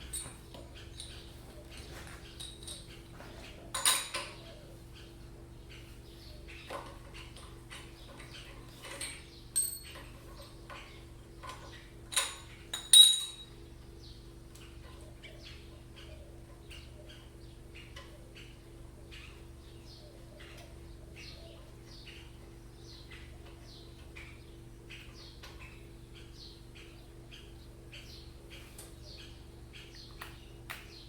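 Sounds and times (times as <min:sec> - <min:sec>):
metal tools clinking: 0:00.0 - 0:03.0, 0:03.7 - 0:04.4, 0:07.4 - 0:13.6
steady low hum: 0:00.0 - 0:31.0.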